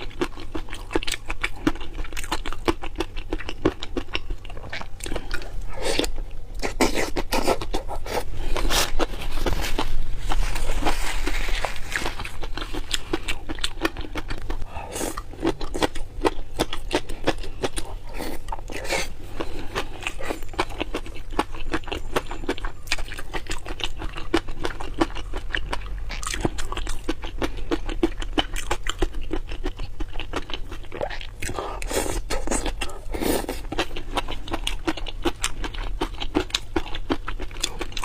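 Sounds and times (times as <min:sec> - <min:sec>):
person chewing crunchy food: 0:00.0 - 0:38.0
scraping rustle: 0:08.5 - 0:12.8.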